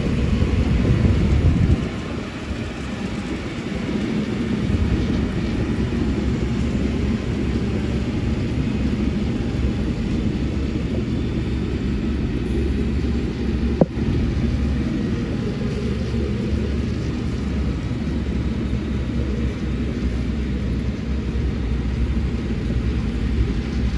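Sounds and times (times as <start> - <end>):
diesel earthmoving machinery rumbling: 0.0 - 23.9.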